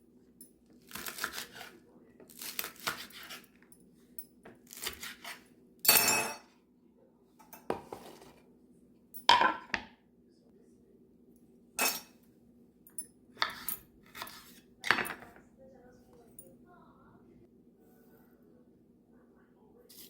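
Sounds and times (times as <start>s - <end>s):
faint steady low hum: 5.5s - 20.0s
dishes and metal utensils clattering: 5.9s - 6.5s, 9.2s - 9.9s, 11.8s - 12.2s, 13.4s - 15.4s.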